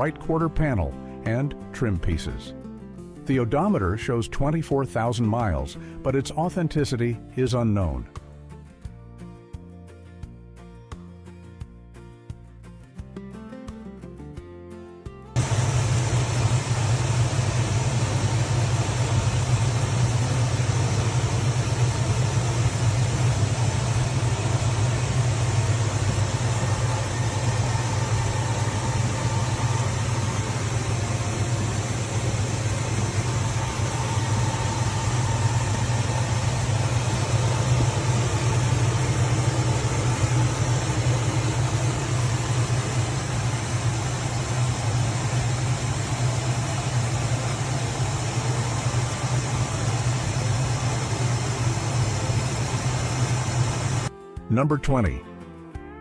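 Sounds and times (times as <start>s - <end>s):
car engine idling: 15.4s - 54.1s.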